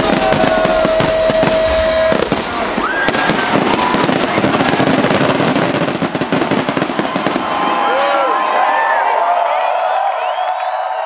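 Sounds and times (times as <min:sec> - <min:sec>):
fireworks crackling and banging: 0:00.0 - 0:07.9.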